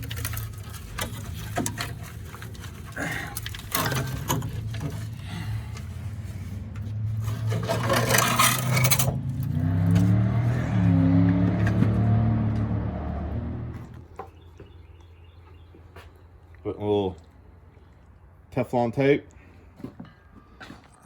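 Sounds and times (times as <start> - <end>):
tools scraping metal fittings: 0.0 - 5.2, 7.2 - 9.6.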